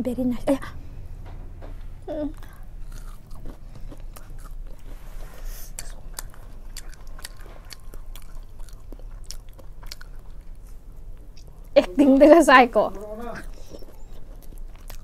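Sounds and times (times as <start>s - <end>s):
steady low hum: 0.0s - 15.0s
chewing fried food: 2.4s - 11.8s, 12.9s - 15.0s.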